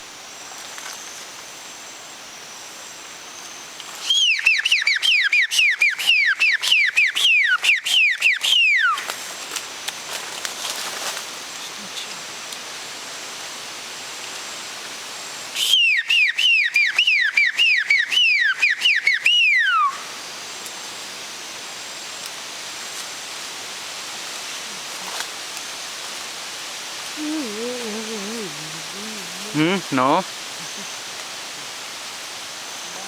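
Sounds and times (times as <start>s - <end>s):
steady hiss: 0.0s - 4.3s, 9.0s - 15.8s, 19.9s - 33.0s.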